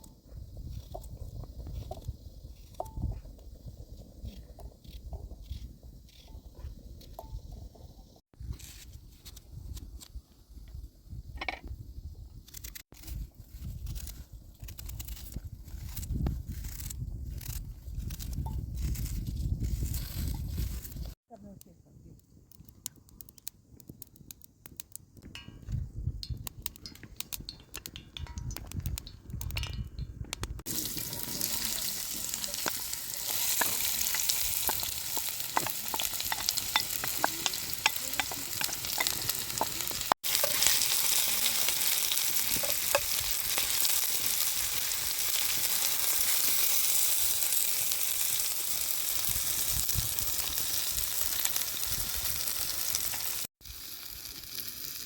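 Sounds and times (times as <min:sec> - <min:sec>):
food sizzling in oil: 0:30.6 - 0:55.0.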